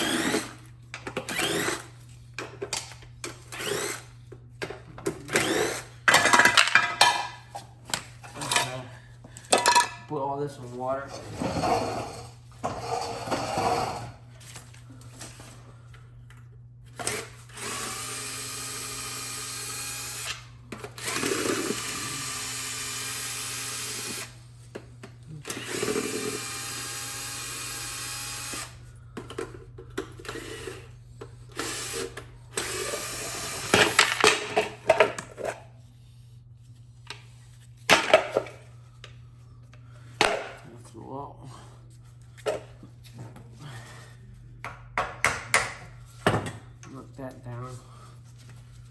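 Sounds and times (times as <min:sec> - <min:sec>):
power drill running: 0:00.0 - 0:02.0, 0:03.2 - 0:04.1, 0:05.2 - 0:06.2, 0:17.0 - 0:24.4, 0:25.4 - 0:28.8, 0:31.5 - 0:34.3.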